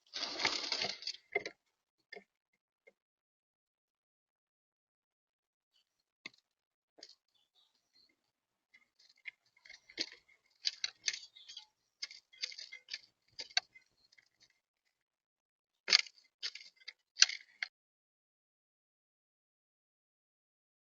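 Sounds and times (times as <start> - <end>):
doves pecking at seed: 0.0 - 2.2, 7.0 - 14.6.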